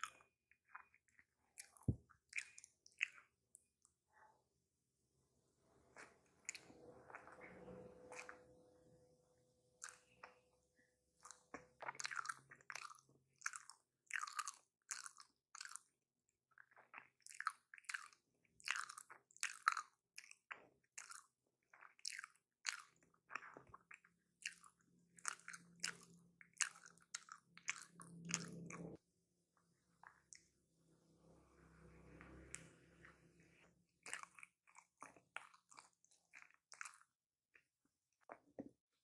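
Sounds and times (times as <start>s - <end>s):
person chewing food: 0.0s - 3.9s, 5.9s - 8.6s, 9.8s - 29.0s, 32.1s - 38.7s.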